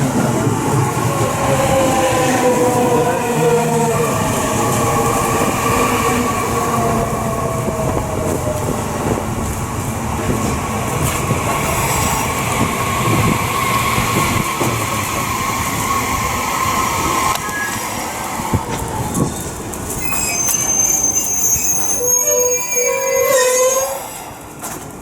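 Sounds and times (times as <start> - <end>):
high whine from train: 0.0 - 25.0
train wheels rumbling on rails: 0.0 - 25.0.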